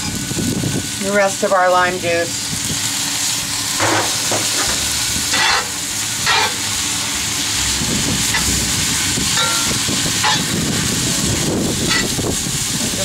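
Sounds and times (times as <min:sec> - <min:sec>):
food sizzling in skillet: 0:00.0 - 0:13.0
utensil scraping and stirring pan: 0:03.8 - 0:12.3.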